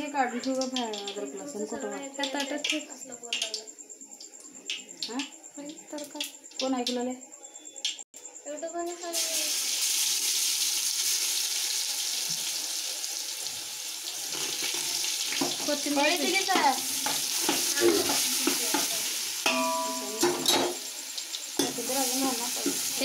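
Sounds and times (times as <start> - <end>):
paste sizzling in hot oil: 9.0 - 23.0.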